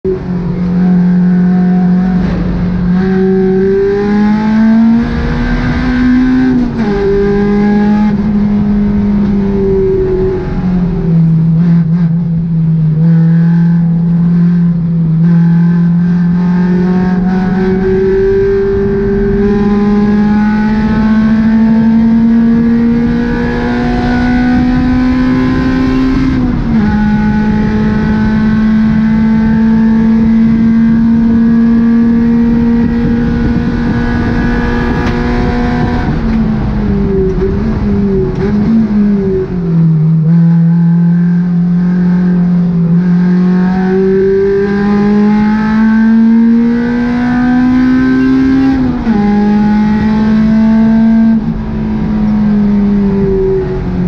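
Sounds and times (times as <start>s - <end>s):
car engine revving: 0.0s - 54.0s
road noise: 0.0s - 54.0s
wind noise: 0.0s - 54.0s.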